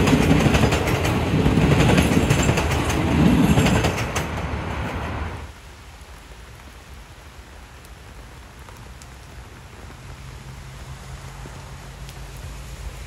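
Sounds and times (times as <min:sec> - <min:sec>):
rail clicks: 0:00.0 - 0:05.4
passing train rumble: 0:00.0 - 0:05.5, 0:09.4 - 0:13.0.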